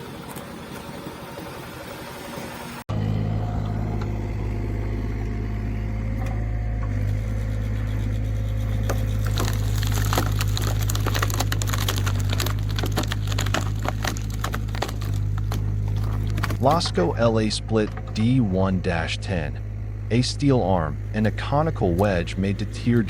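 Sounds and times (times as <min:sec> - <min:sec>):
log splitter engine humming: 0:00.0 - 0:23.0
wood cracking and splintering: 0:06.1 - 0:18.4.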